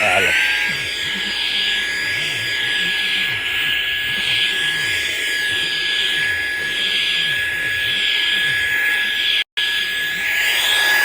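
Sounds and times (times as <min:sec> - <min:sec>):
handheld vacuum cleaner running: 0:10.2 - 0:11.0.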